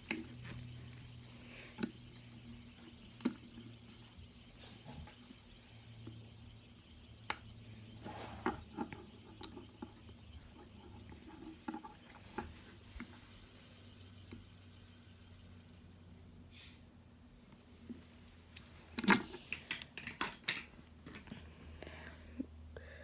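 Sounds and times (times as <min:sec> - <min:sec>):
fidget spinner clicks and taps: 0:00.0 - 0:16.2, 0:18.5 - 0:20.6
steady low hum: 0:00.0 - 0:19.6.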